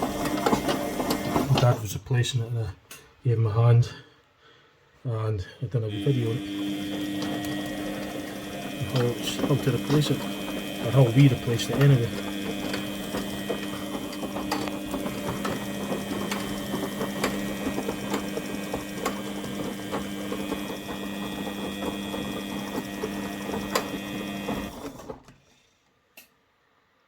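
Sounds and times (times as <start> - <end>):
washing machine humming: 0.0 - 1.8, 5.8 - 25.3.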